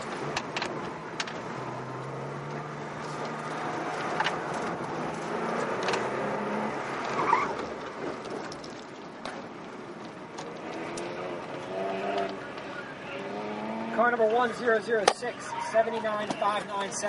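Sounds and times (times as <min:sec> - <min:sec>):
car engine accelerating and braking: 0:00.0 - 0:17.0
tire squeal: 0:06.5 - 0:07.7, 0:12.0 - 0:14.5, 0:15.3 - 0:16.6.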